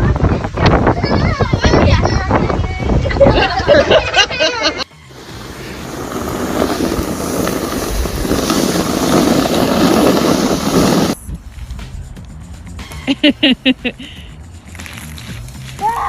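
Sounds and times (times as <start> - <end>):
loud rushing noise: 5.1 - 11.4.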